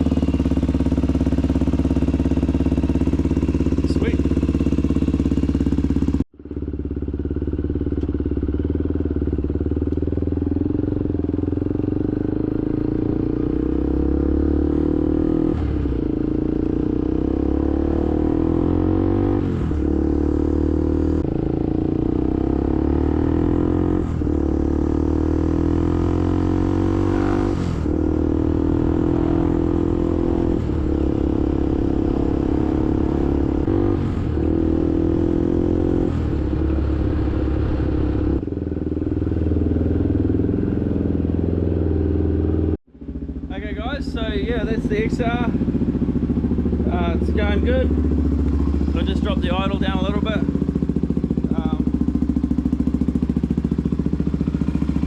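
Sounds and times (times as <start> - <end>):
motorcycle engine idling: 0.0 - 14.4, 27.9 - 55.0.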